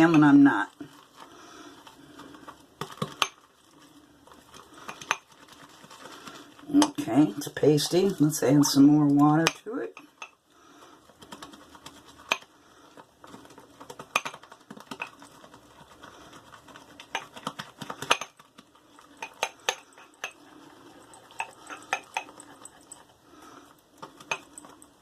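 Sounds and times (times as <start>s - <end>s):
brush clinking against mug: 19.2s - 23.0s, 24.2s - 25.0s.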